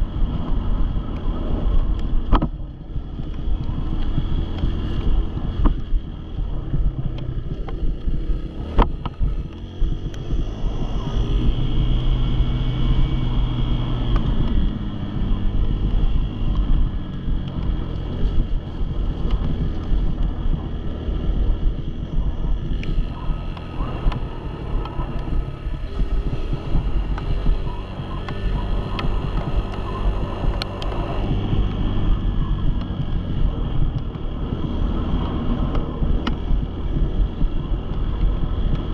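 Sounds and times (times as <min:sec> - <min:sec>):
dirt bike engine: 0:00.0 - 0:38.9
wind buffeting microphone: 0:00.0 - 0:38.9.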